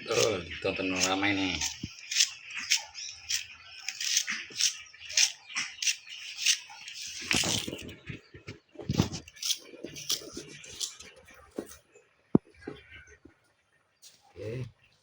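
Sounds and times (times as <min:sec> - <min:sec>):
scraping crunching strokes: 0:00.0 - 0:11.8.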